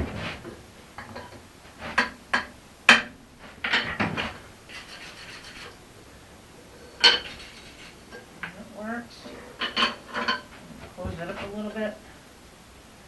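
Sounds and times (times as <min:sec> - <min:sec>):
axe head scraping and rubbing: 0:04.7 - 0:05.8, 0:06.8 - 0:08.3.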